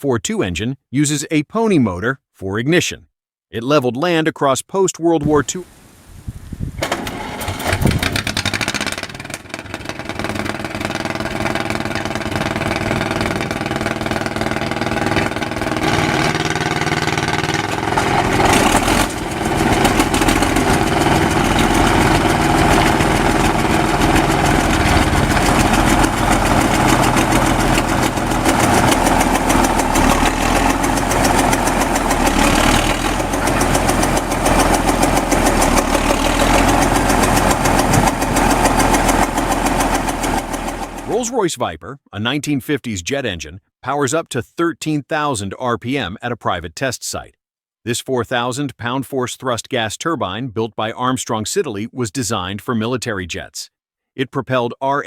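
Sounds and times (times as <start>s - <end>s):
diesel engine clattering: 6.8s - 41.3s.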